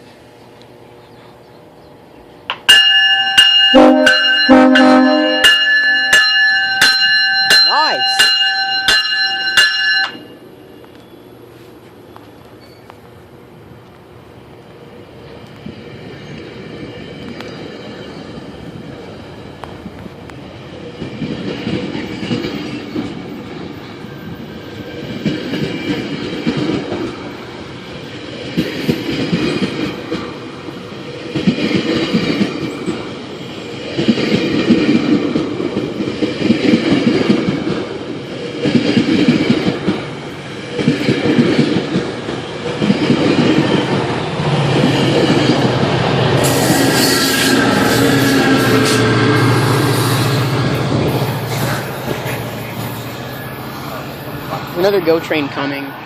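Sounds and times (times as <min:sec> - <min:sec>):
train wheels clattering over rails: 0:14.7 - 0:55.8.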